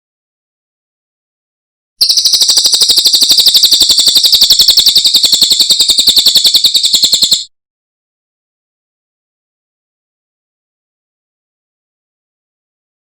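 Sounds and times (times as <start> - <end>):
bird singing high-pitched trill: 2.0 - 7.5.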